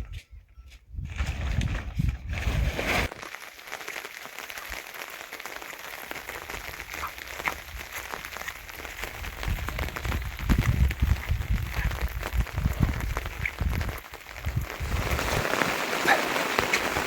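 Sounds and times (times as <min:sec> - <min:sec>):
heavy rain falling: 0:03.1 - 0:17.0.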